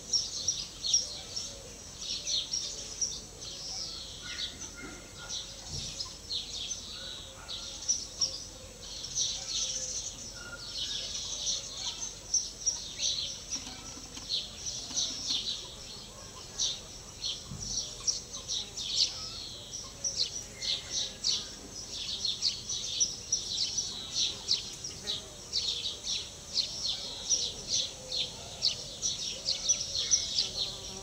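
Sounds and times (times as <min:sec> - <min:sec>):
birds chirping and singing: 0:00.0 - 0:31.0.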